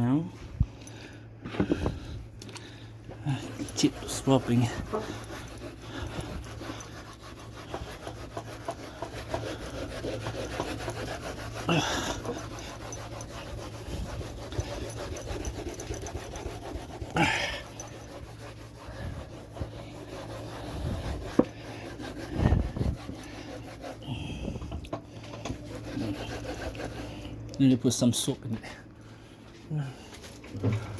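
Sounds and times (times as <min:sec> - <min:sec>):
scrubbing on refrigerator door: 0:01.7 - 0:24.0.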